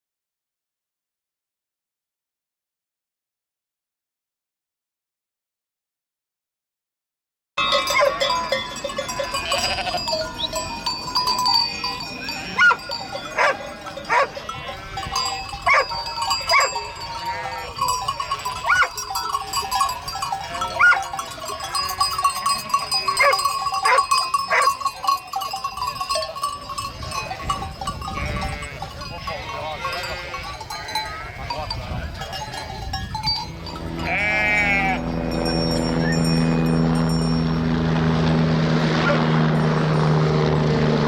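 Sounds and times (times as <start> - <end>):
animal cries: 9.4 - 10.2, 34.0 - 35.0.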